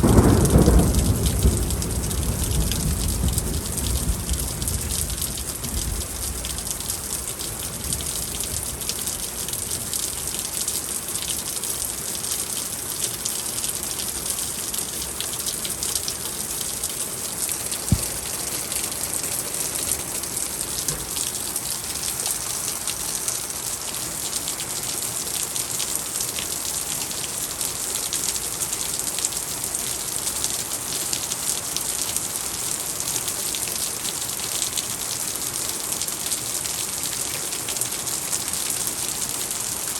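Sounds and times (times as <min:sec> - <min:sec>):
heavy rain pouring: 0:00.0 - 0:39.9
sharp knock: 0:17.9 - 0:18.2.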